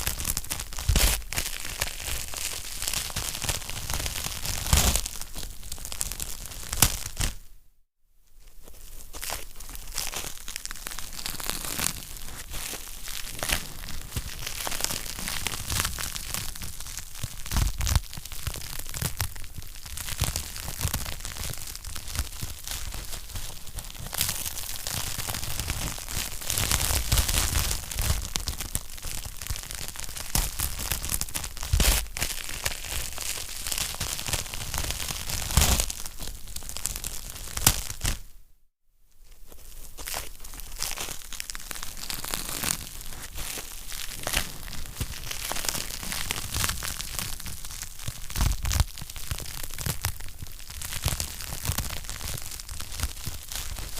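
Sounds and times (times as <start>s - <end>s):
wood fire crackling: 39.8s - 53.9s.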